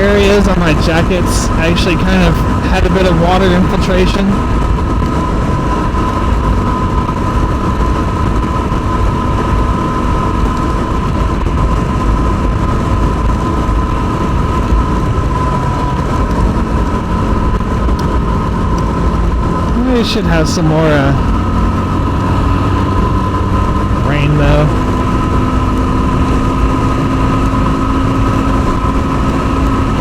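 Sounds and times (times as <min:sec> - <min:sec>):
motorcycle engine cruising: 0:00.0 - 0:30.0
steady high whine: 0:00.0 - 0:30.0
wind rushing over microphone: 0:00.0 - 0:30.0.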